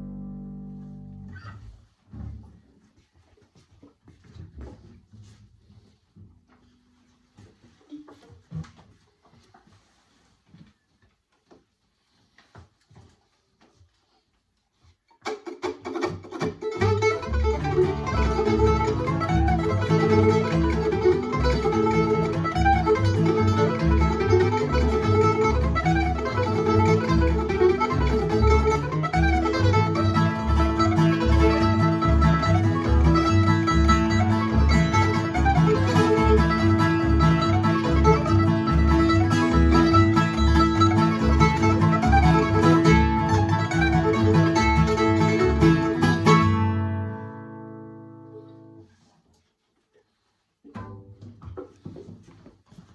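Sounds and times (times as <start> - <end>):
acoustic string band playing: 15.3 - 47.8.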